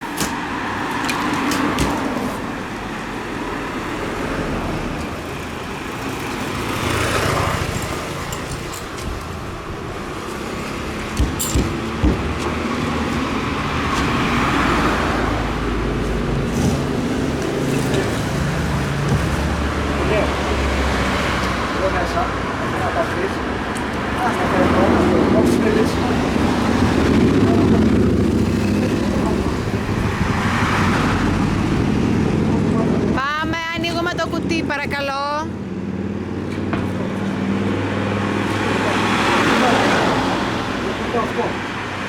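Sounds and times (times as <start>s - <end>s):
vehicles passing by: 0.0s - 42.0s
sharp knocks: 11.1s - 12.7s.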